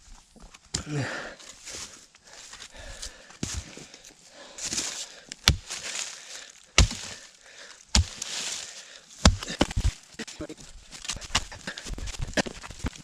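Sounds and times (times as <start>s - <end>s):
wood and soil crunching: 0.0s - 13.0s
tool chopping into roots: 5.4s - 5.9s, 6.8s - 7.2s, 7.9s - 8.6s, 9.2s - 10.1s.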